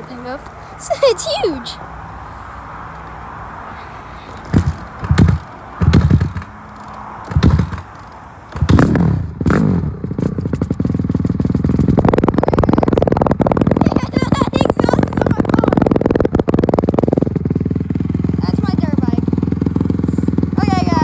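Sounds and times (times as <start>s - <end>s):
dirt bike engine starting and running: 4.4s - 21.0s.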